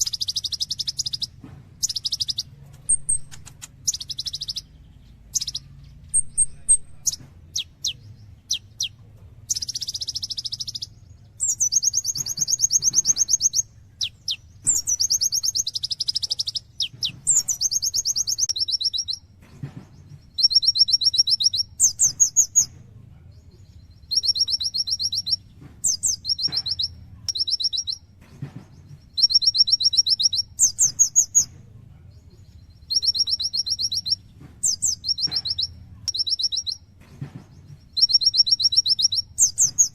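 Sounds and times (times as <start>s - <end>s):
sunbird singing trilled phrases: 0.0s - 19.3s, 20.0s - 22.7s, 23.5s - 28.1s, 28.8s - 31.5s, 32.3s - 36.9s, 37.6s - 39.9s
sharp down-slurred bird notes: 32.8s - 36.8s.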